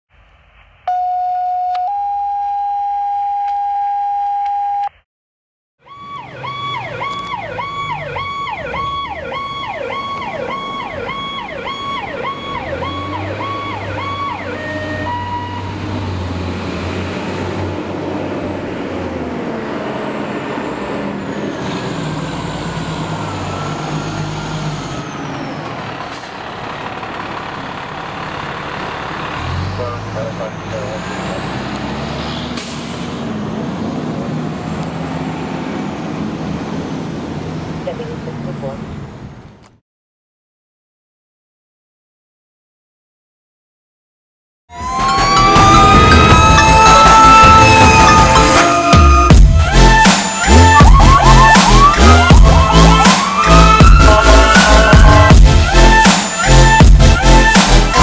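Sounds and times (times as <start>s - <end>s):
fire engine siren yelping: 0.8s - 4.9s, 5.8s - 38.8s, 44.7s - 58.0s
truck engine running: 5.9s - 39.7s, 44.8s - 58.0s.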